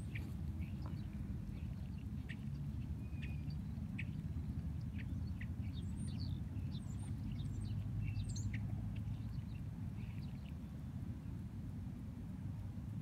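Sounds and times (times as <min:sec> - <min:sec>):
birds chirping: 0:00.0 - 0:11.0
steady low rumble: 0:00.0 - 0:13.0.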